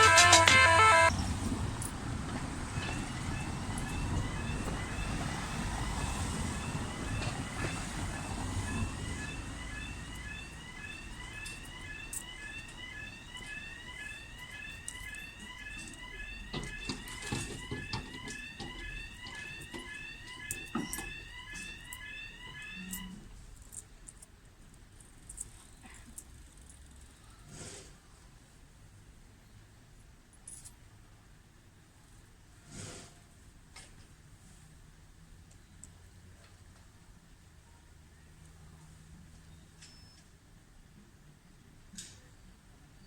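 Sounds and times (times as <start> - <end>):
level crossing alarm chirping: 0.0 - 1.1, 2.8 - 23.3
road traffic rumble: 0.0 - 24.4.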